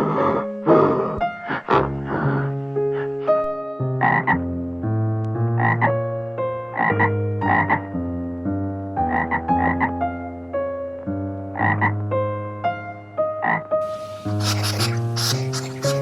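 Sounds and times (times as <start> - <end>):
soft piano music: 0.0 - 16.0
frog croaking: 1.5 - 4.4, 5.6 - 6.0, 6.8 - 7.8, 9.1 - 9.9, 11.6 - 12.0, 13.4 - 16.0.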